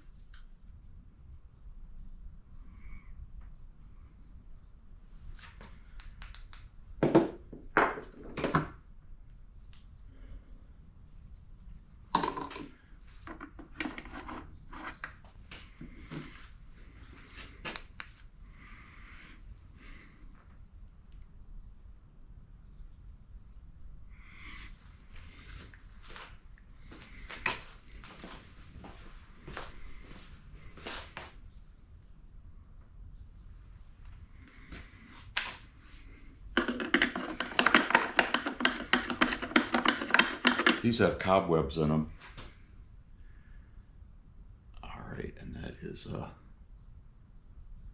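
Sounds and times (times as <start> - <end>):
scraping: 36.5 - 41.0
tools clicking and clattering: 36.6 - 40.9.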